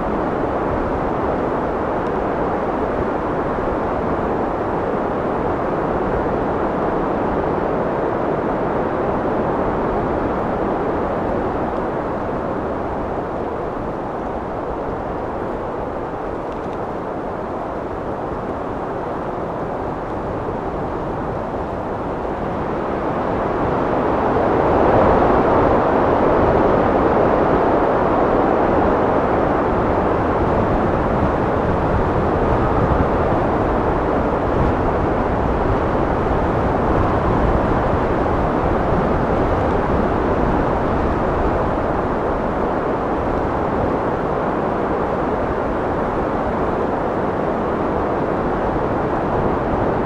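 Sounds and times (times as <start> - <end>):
wind blowing: 0.0 - 25.7.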